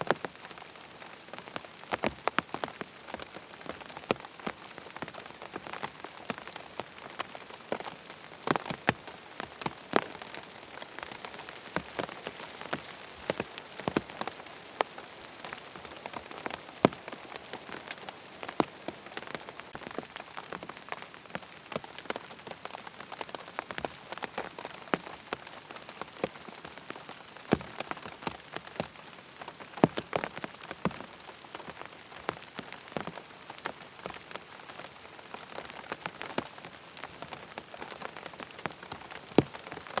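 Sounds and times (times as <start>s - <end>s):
rain falling on a surface: 0.0s - 40.0s.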